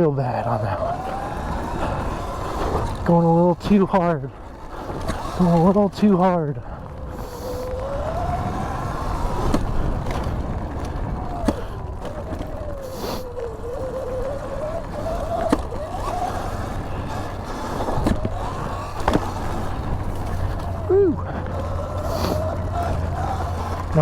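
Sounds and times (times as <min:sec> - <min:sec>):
electric motor whine: 0:00.0 - 0:03.4, 0:04.4 - 0:24.0
wind and tyres on dirt: 0:00.0 - 0:24.0.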